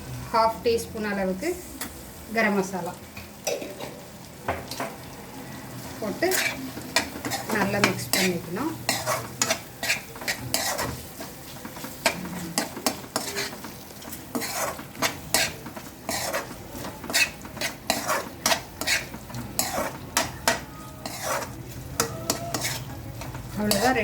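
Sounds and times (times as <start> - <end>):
light sizzle: 0.0 - 24.0
spoon scraping metal pan: 6.1 - 24.0.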